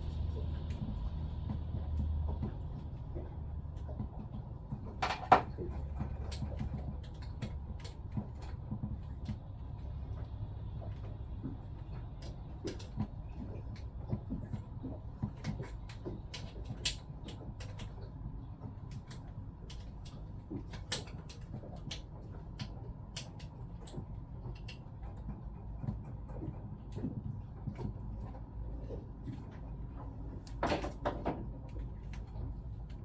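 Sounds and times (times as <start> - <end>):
low steady hum: 0.0 - 33.0
clicks and knocks of pump parts: 4.0 - 9.4, 30.4 - 33.0.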